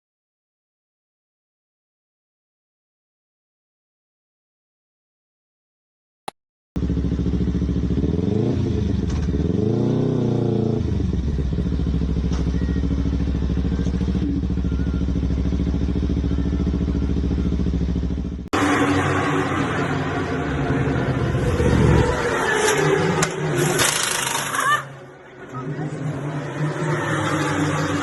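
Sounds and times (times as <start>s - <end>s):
vehicle engine running and revving: 6.8s - 24.6s, 25.2s - 28.0s
rough engine sound: 6.8s - 28.0s.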